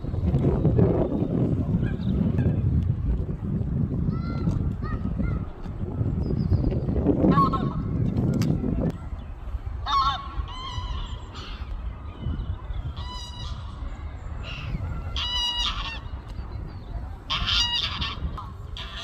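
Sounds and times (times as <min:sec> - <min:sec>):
water birds calling: 0:09.0 - 0:19.0.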